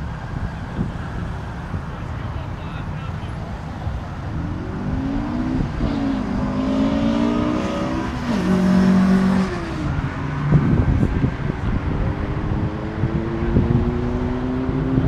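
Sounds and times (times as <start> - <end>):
car engine revving and accelerating: 4.2 - 15.0.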